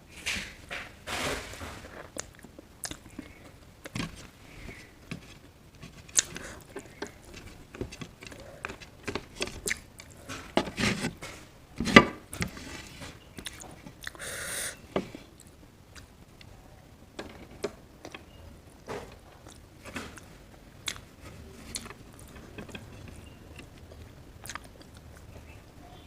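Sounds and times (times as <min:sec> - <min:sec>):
person chewing food: 0:02.0 - 0:04.9, 0:05.8 - 0:10.4, 0:13.4 - 0:14.2, 0:19.4 - 0:25.4.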